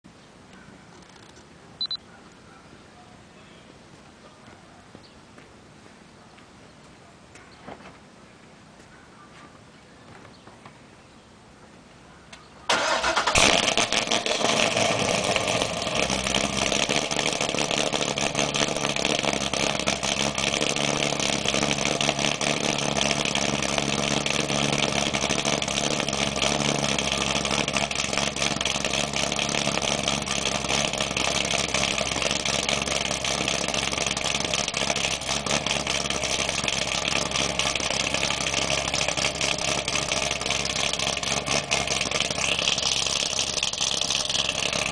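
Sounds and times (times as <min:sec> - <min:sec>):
car engine starting and idling: 0:12.7 - 0:44.9.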